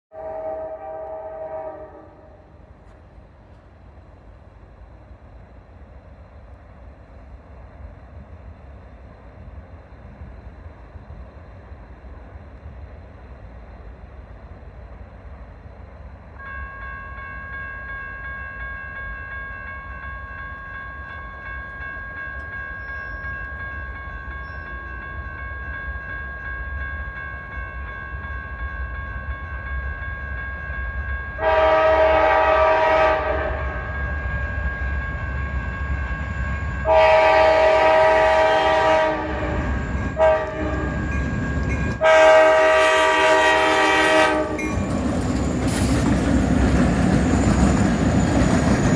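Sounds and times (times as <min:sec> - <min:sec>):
locomotive horn: 0:00.1 - 0:02.5, 0:31.4 - 0:34.3, 0:36.8 - 0:41.1, 0:41.9 - 0:44.8
crossing signal bell ringing: 0:16.4 - 0:31.8, 0:33.6 - 0:37.4, 0:39.4 - 0:42.4
diesel locomotive rumble: 0:31.4 - 0:48.9.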